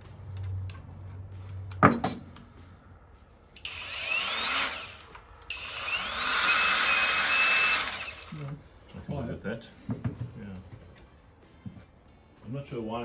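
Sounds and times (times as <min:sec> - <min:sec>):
angle grinder whining: 0:03.6 - 0:08.6.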